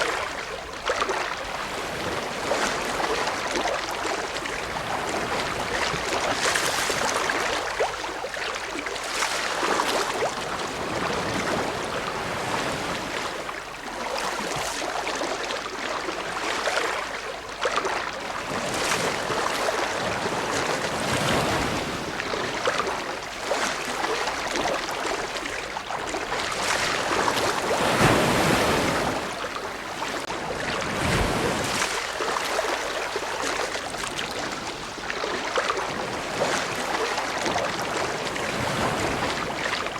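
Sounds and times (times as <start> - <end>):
ocean waves surf: 9.3 - 13.5, 18.4 - 39.9.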